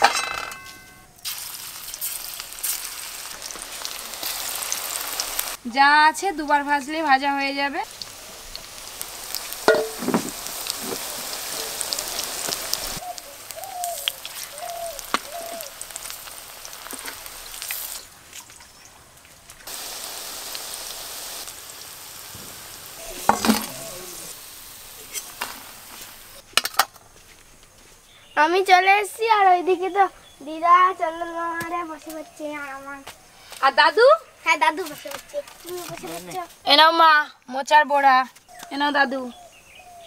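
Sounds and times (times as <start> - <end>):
fritters sizzling in hot oil: 1.2 - 26.8
utensil knocking against pan: 9.7 - 11.0, 23.3 - 23.8.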